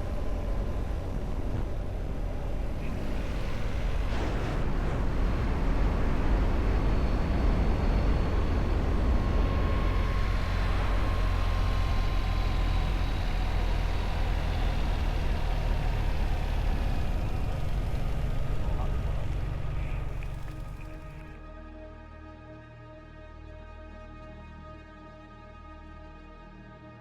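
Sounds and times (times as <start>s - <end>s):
wind rush: 0.0s - 12.2s
motorcycle engine rumble: 0.0s - 21.4s
faint whine falling in pitch: 4.8s - 17.8s.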